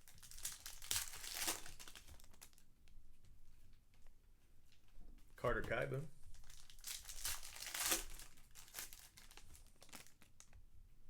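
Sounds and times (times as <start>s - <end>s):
card pack wrappers crinkling and tearing: 0.0s - 2.6s, 6.3s - 10.6s.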